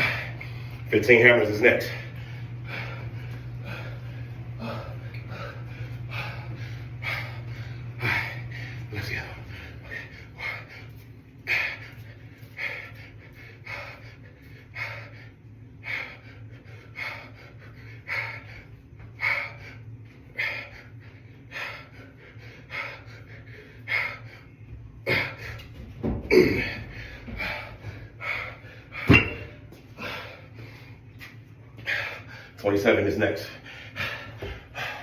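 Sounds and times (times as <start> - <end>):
man breathing hard: 0.0 - 0.9, 1.7 - 32.6, 33.4 - 35.0
man grunting: 26.3 - 26.9.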